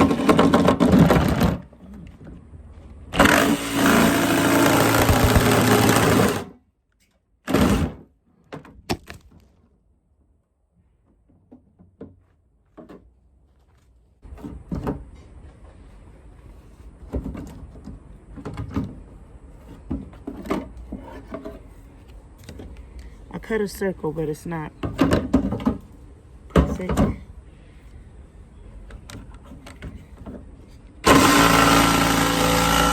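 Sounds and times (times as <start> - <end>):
jigsaw cutting: 3.2 - 6.5, 7.5 - 8.0, 31.0 - 32.9.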